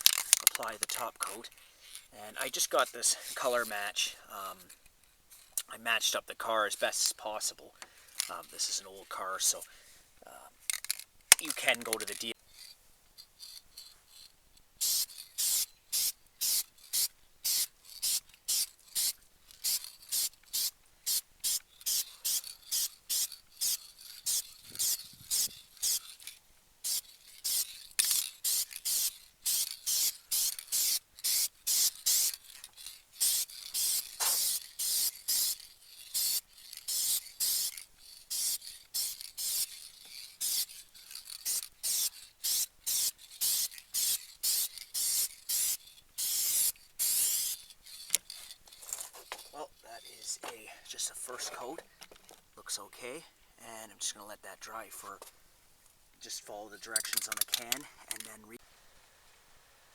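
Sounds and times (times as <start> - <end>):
spray can hissing: 14.8 - 26.2, 26.8 - 49.5.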